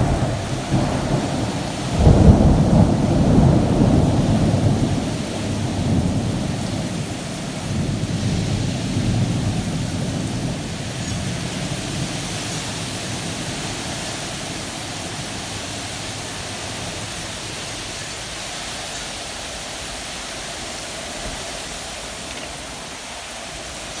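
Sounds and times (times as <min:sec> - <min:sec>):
thunder rumble: 0:00.0 - 0:17.0
rain: 0:00.0 - 0:24.0
wind: 0:00.0 - 0:24.0.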